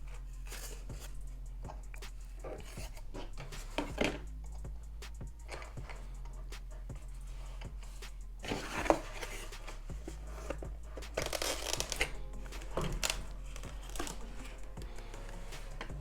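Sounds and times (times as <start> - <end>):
plastic packaging crinkling: 10.4 - 15.9.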